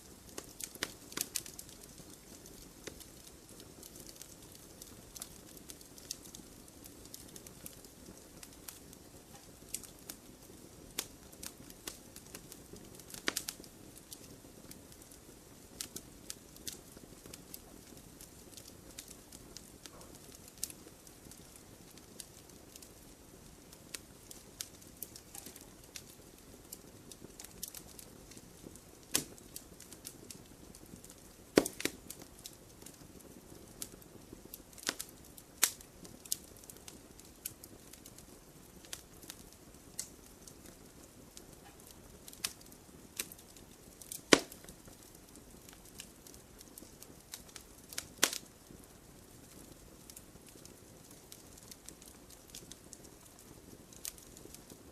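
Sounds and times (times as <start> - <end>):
campfire crackling and popping: 0.0 - 54.9
fire hissing: 0.0 - 54.9.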